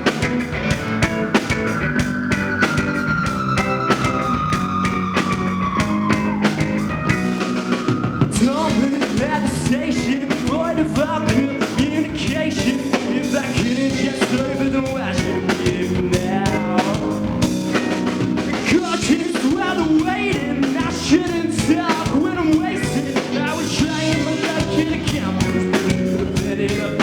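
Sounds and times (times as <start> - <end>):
wavering melody line: 0.0 - 9.0
drum kit beat: 0.0 - 27.0
live rock band playing: 0.0 - 27.0.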